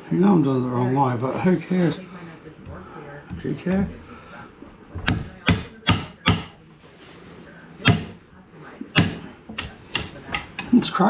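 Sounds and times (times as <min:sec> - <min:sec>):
sharp knocks on wood: 0:05.0 - 0:06.6, 0:07.9 - 0:08.2, 0:09.0 - 0:10.7.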